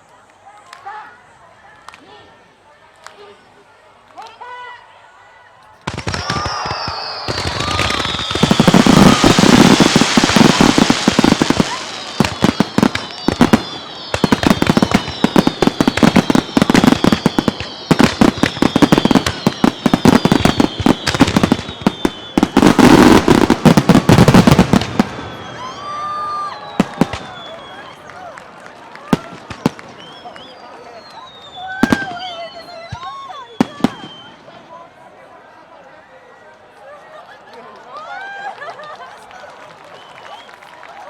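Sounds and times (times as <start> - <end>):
firework shell bursts and crackling: 5.8 - 25.4
falling firework whistles: 5.9 - 28.1, 29.1 - 34.6.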